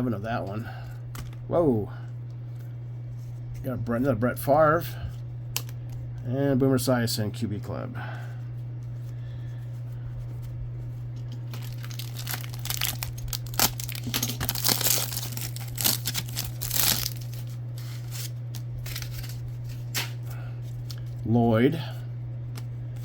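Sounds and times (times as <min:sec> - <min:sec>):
low electrical hum: 0:00.0 - 0:23.0
wrapper tearing and crinkling: 0:11.3 - 0:20.0.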